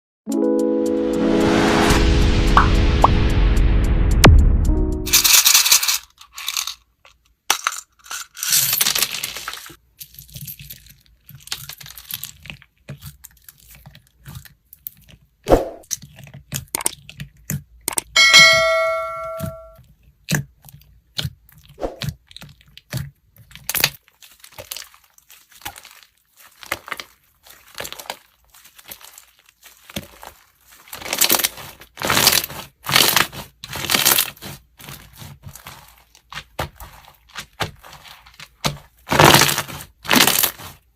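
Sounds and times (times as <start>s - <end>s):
chime ringing: 18.2s - 19.8s
slime crackling and popping: 22.4s - 40.9s.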